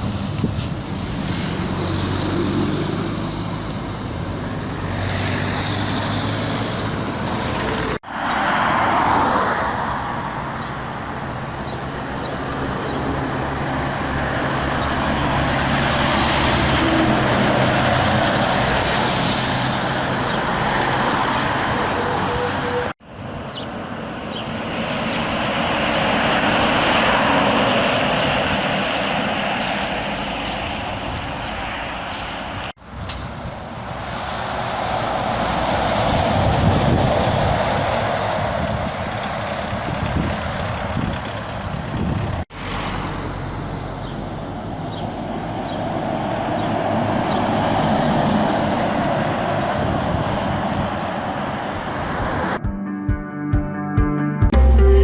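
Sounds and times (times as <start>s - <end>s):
truck engine drone: 0.0s - 8.3s, 54.5s - 55.0s
tyre and road noise: 0.0s - 52.6s.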